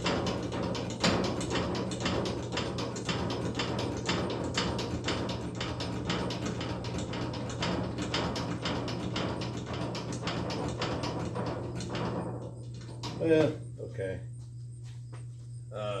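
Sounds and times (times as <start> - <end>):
hydraulic lift clicks and knocks: 0.0 - 13.5
low steady hum: 11.0 - 16.0.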